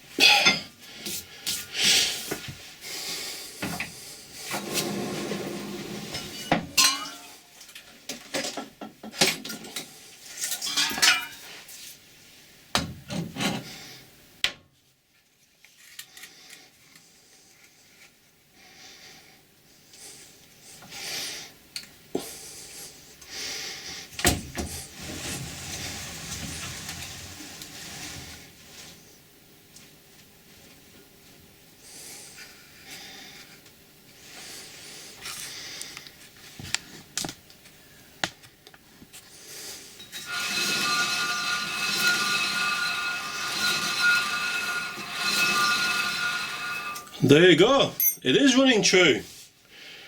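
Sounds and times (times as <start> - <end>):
ringing metal clanks: 6.8 - 7.4, 48.0 - 48.2
metal clinks knocks and scraping: 48.0 - 48.3.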